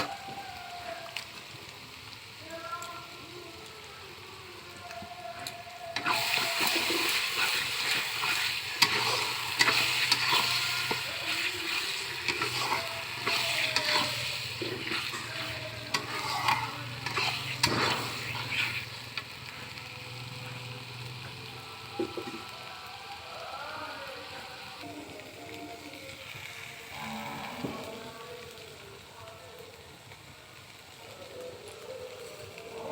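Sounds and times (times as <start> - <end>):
food sizzling in a pan: 0.0 - 32.9
spoon stirring and scraping: 5.9 - 19.3.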